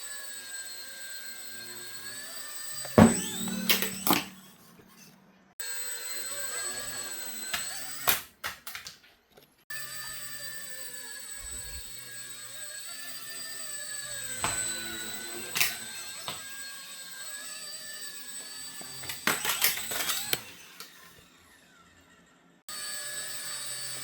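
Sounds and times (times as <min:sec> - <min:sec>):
small electric motor whining: 0:00.0 - 0:08.3, 0:09.7 - 0:24.0
sharp clicks and knocks: 0:02.9 - 0:04.5.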